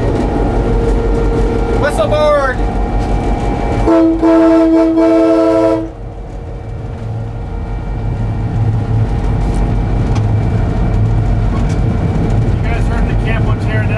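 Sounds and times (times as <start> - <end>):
locomotive air horn chord: 0.0 - 9.5
diesel engine low drone: 0.0 - 13.9.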